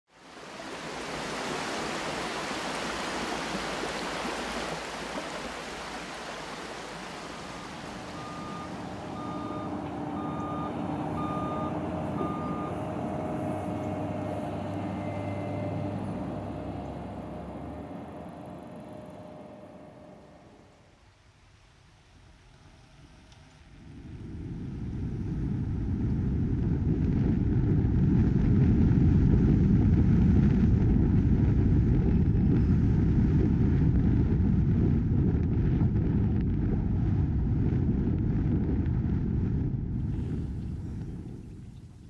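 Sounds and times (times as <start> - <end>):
vehicle traffic: 5.8 - 20.7
heavy vehicle engine hum: 6.8 - 20.7
reversing alarm beeps: 8.1 - 12.9.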